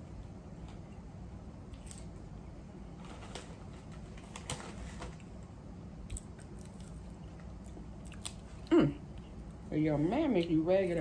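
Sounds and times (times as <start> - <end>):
low steady hum: 0.0 - 11.0
potato chips being chewed: 6.0 - 9.7.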